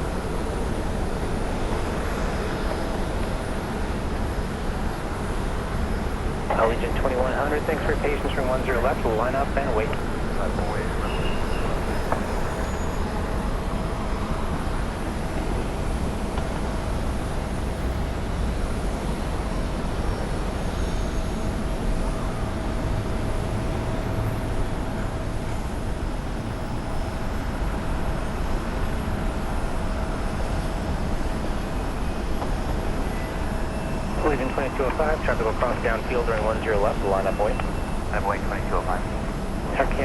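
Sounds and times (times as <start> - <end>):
jet engines rumbling: 0.0 - 16.2, 30.8 - 40.0.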